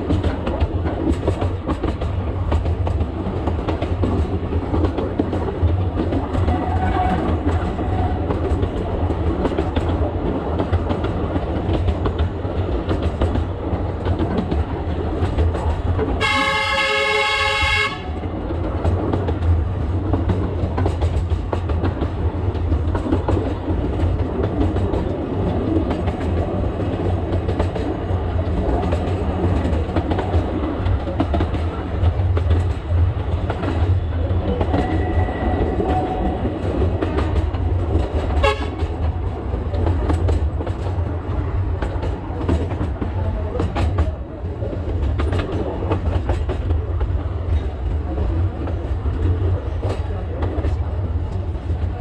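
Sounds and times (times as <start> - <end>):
train engine and wheels rumbling: 0.0 - 52.0
train horn blast: 16.2 - 18.2, 38.4 - 38.9.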